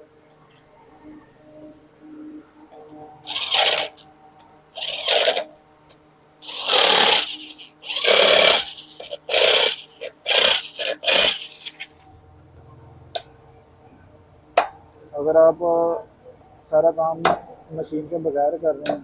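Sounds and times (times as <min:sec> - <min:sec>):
hand tools on engine parts: 0:06.4 - 0:12.1.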